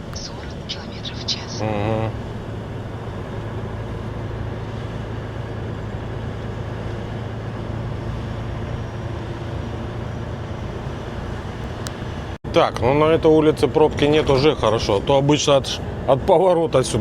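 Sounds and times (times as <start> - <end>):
diesel truck engine drone: 0.0 - 17.0
road noise: 0.0 - 17.0.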